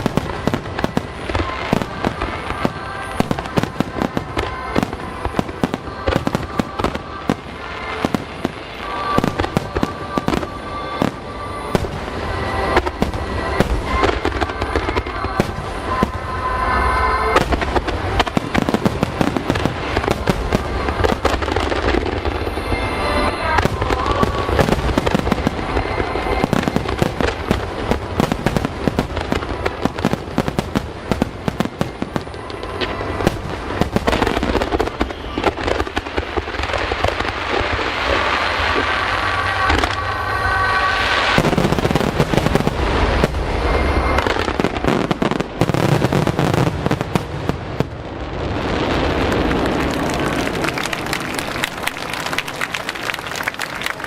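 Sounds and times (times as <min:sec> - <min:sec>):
music over outdoor loudspeakers: 0:00.0 - 0:47.9
fireworks bursting: 0:00.0 - 0:54.0.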